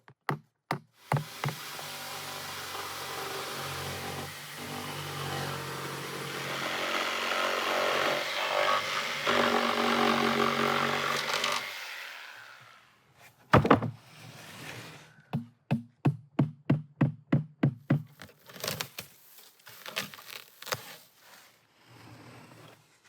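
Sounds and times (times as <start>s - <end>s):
sharp knocks: 13.5s - 14.0s.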